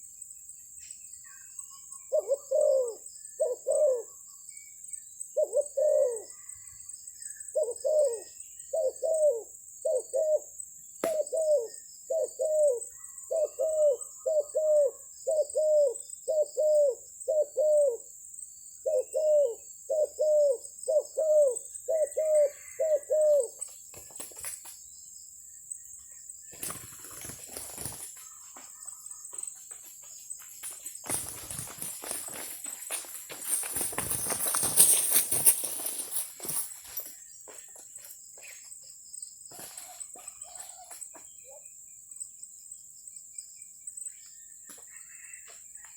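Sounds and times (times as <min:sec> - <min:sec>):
dove cooing: 0:02.0 - 0:04.2, 0:05.4 - 0:06.7, 0:07.5 - 0:18.1, 0:18.8 - 0:23.6, 0:39.6 - 0:41.6
rustling: 0:29.5 - 0:37.2.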